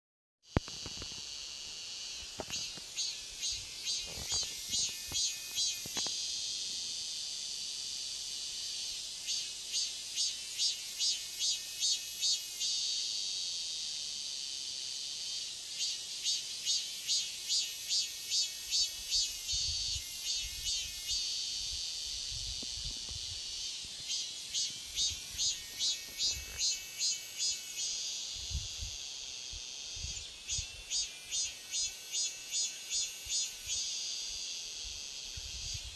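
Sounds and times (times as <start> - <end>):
cicadas singing: 0.4 - 35.9.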